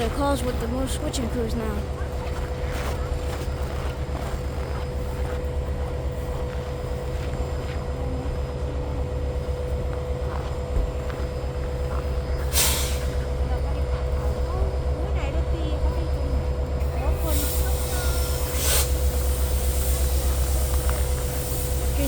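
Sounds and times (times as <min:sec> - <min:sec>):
engine idling: 0:00.0 - 0:22.0
burst of hiss: 0:12.5 - 0:13.2, 0:17.3 - 0:22.0.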